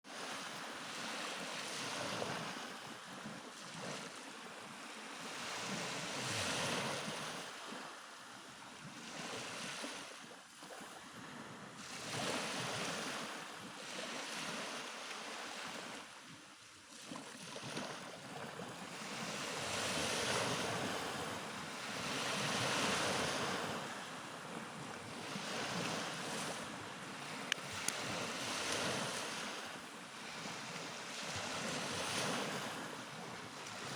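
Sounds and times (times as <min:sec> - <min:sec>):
waves breaking on shore: 0:00.1 - 0:33.9
wind on microphone: 0:17.7 - 0:33.9.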